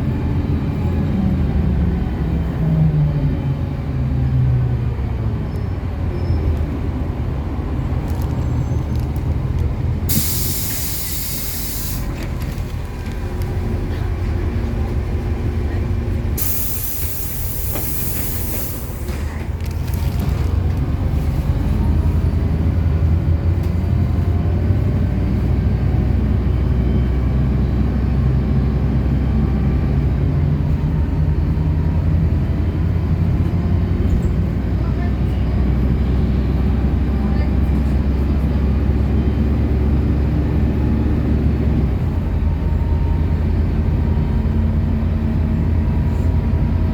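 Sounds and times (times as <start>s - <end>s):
bus engine running: 0.0s - 46.9s
compressed air hisses: 10.1s - 12.2s, 16.4s - 19.1s.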